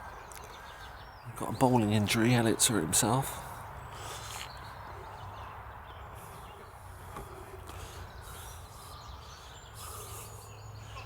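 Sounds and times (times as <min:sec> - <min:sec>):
faint bird chirps: 0:03.8 - 0:11.0.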